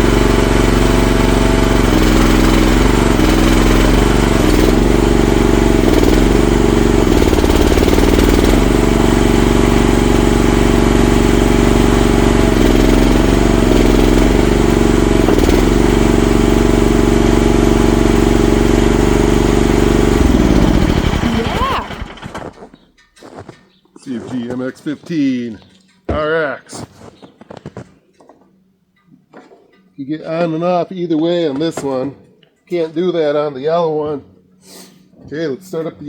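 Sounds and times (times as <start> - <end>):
mini excavator engine running: 0.0 - 24.6.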